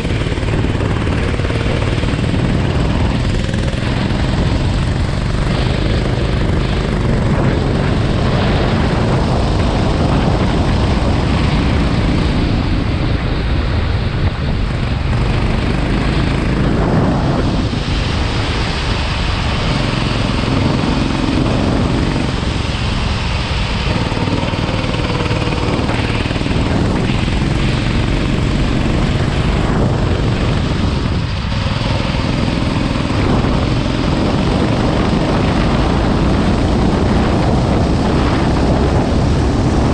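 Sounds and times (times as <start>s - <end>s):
go-kart engine: 0.0s - 39.9s
wind and road noise: 0.0s - 39.9s.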